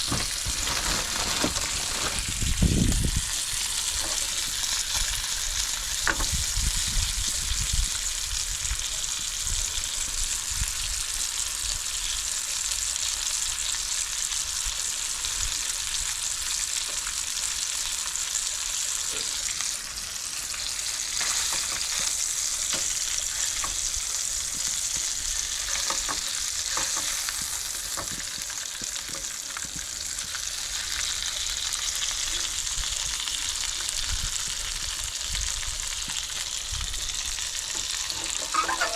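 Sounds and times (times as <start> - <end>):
hot dogs sizzling in a pan: 0.0 - 38.9.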